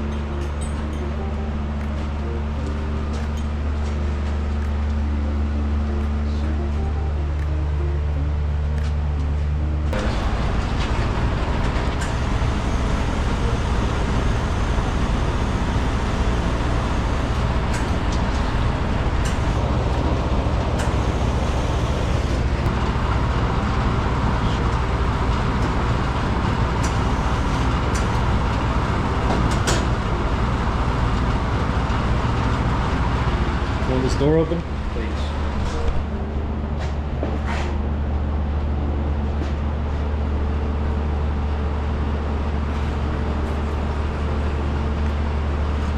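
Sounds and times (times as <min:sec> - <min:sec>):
low machine rumble: 0:00.0 - 0:45.9.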